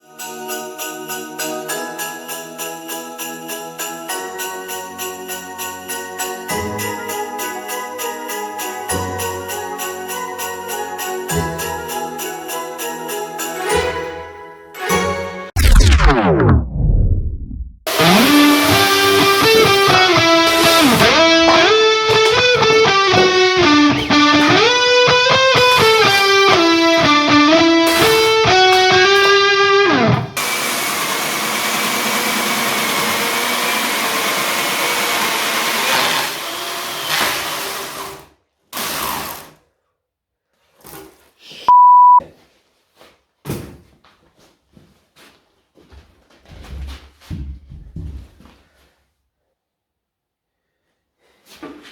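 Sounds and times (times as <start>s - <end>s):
loud electronic beep: 15.6s - 19.1s, 41.7s - 42.2s
plucked guitar music: 17.9s - 30.4s.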